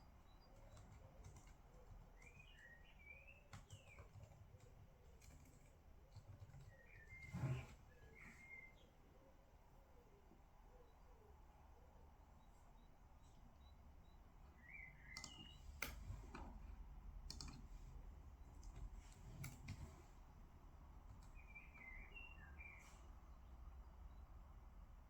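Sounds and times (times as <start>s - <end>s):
small bird chirping: 0.0s - 9.1s, 12.4s - 16.0s, 21.2s - 23.1s
faint desk clicks and taps: 3.5s - 7.8s, 15.1s - 20.1s.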